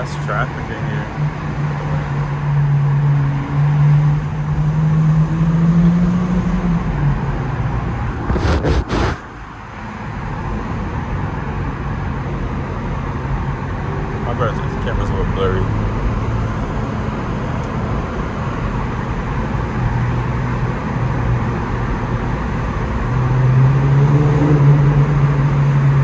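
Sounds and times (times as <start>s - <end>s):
brief burst of noise: 8.3s - 9.3s.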